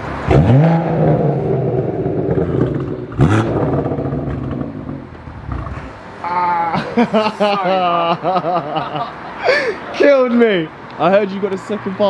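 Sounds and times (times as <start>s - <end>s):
car engine revving: 0.0s - 6.1s.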